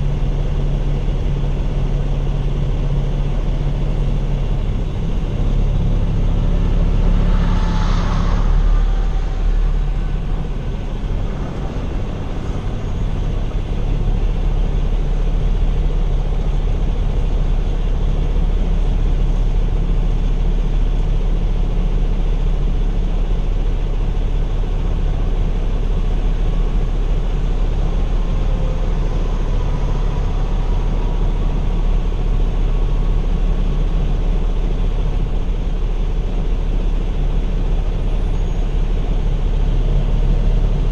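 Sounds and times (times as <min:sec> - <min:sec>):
diesel truck engine rumble: 0:00.0 - 0:40.9
road noise: 0:00.0 - 0:40.9.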